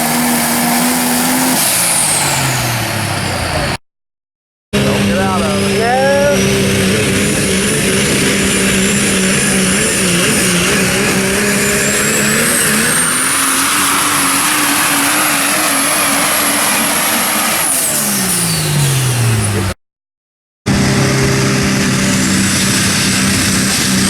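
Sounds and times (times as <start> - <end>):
diesel truck engine under load: 0.0 - 3.8, 4.8 - 19.8, 20.7 - 24.0
turbocharger whine: 4.8 - 19.8, 20.7 - 24.0.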